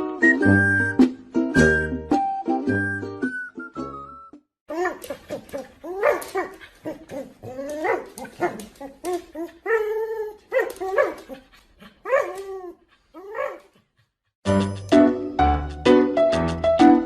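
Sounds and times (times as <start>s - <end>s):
music: 0.0s - 4.5s, 14.4s - 17.0s.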